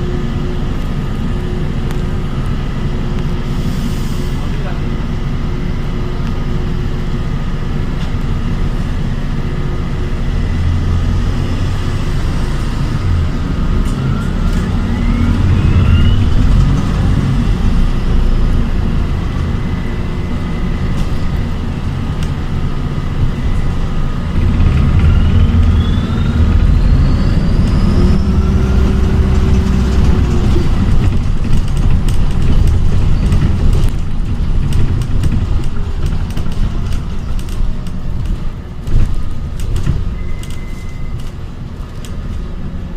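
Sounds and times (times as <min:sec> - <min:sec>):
bus engine low rumble: 0:00.0 - 0:42.9
electric drive whine rising: 0:12.6 - 0:21.5.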